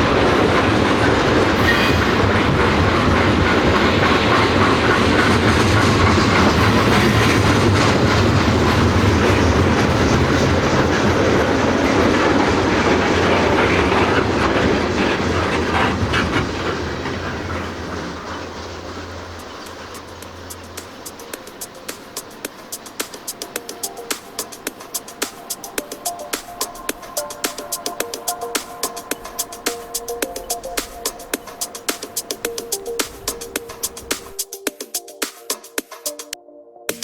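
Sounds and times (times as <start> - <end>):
train wheels clattering on rails: 0.0 - 37.0.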